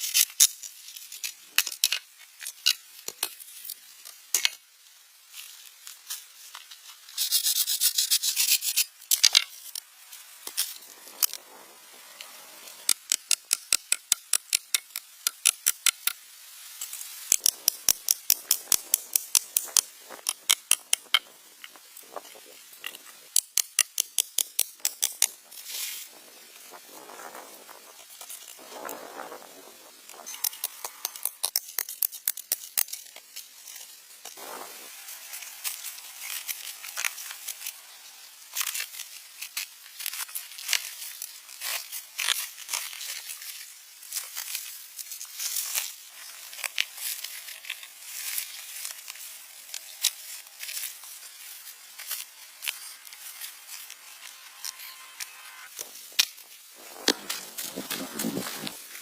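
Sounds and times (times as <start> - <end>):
rushing scrape: 56.8 - 59.0.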